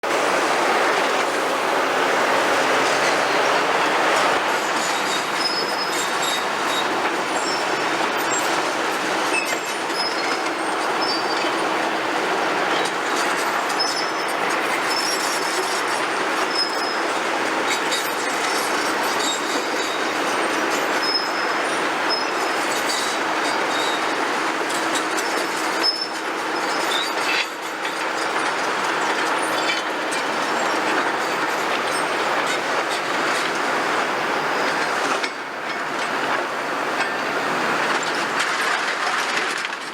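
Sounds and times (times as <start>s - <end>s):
excavator engine hum: 0.0s - 39.9s
high metallic squeals: 2.6s - 8.6s, 12.7s - 24.1s.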